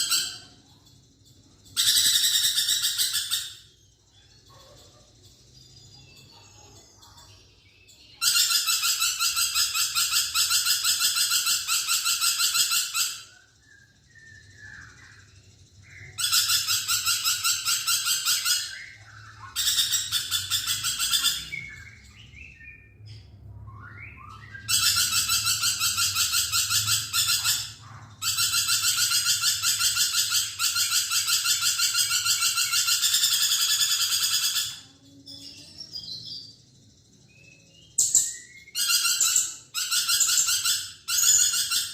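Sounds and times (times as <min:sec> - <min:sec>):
lorikeet shrill trilling: 0:00.0 - 0:00.6, 0:01.6 - 0:03.7, 0:08.1 - 0:15.2, 0:15.8 - 0:22.8, 0:23.7 - 0:34.8, 0:37.9 - 0:41.9.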